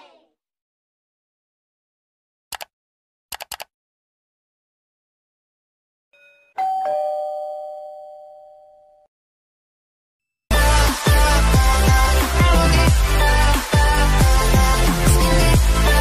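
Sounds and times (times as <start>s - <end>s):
quick clicks: 2.5s - 2.7s, 3.3s - 3.7s
two-note ding-dong chime: 6.2s - 9.0s.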